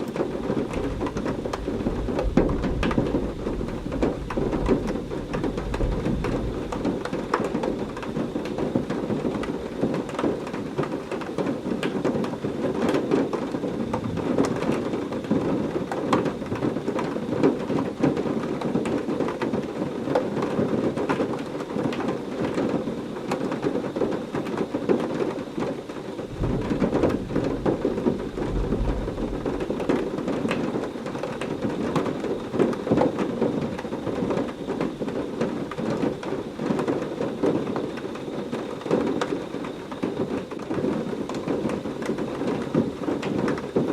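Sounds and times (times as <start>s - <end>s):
low rumble of thunder: 0.0s - 19.0s, 26.1s - 43.9s
heavy rain: 0.0s - 43.9s
raindrops ticking on a surface: 0.0s - 43.9s.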